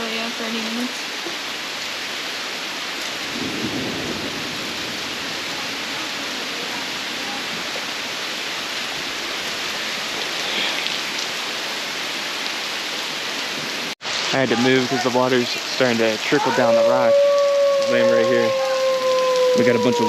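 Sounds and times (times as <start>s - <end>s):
heavy rain pouring: 0.0s - 20.0s
thunder rumble: 3.2s - 7.9s.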